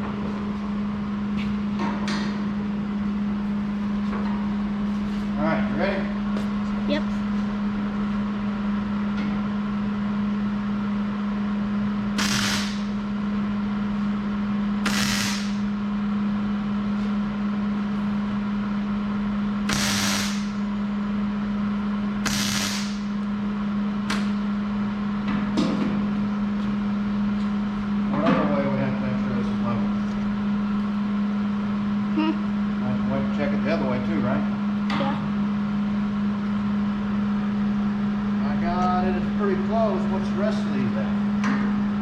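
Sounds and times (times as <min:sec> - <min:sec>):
steady low hum: 0:00.0 - 0:42.0
welding arc crackling hiss: 0:12.1 - 0:13.0, 0:14.8 - 0:15.7, 0:19.7 - 0:20.6, 0:22.2 - 0:23.2.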